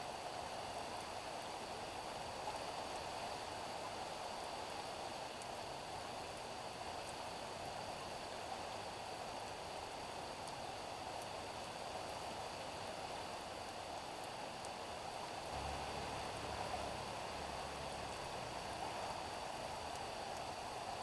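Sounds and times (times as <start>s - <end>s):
rain falling on street: 13.1s - 21.0s.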